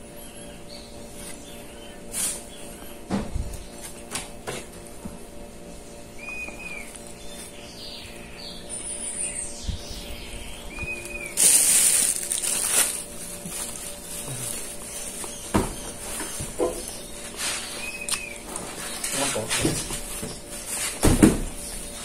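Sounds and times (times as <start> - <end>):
birds chirping: 0.0 - 4.1, 4.7 - 22.0
steady low hum: 0.0 - 22.0
loud rustling hiss: 11.4 - 14.7.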